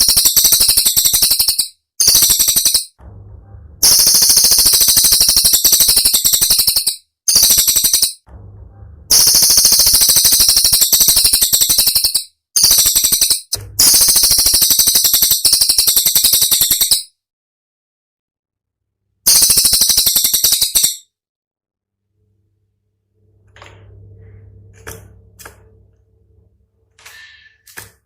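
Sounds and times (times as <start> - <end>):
bird singing high-pitched notes: 3.8 - 8.2, 9.1 - 17.1, 19.3 - 21.0.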